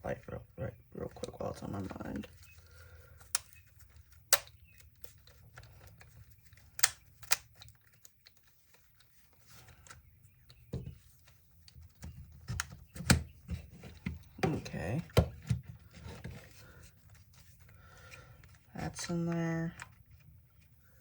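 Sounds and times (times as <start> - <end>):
plastic parts clicking and tapping: 2.2 - 16.5.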